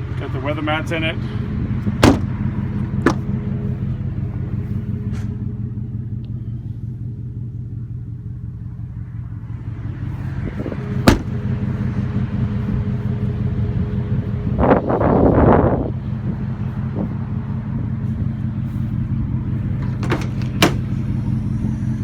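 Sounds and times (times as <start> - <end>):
pickup truck engine idling: 0.0 - 9.0, 10.8 - 12.0, 18.0 - 21.8
sharp knock: 2.0 - 2.4, 11.1 - 11.4.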